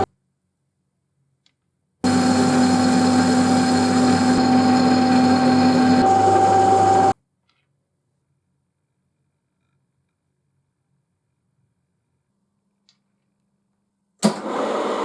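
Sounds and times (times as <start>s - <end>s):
rough mechanical noise: 2.0s - 7.1s
electric machine tool whining: 2.0s - 7.2s.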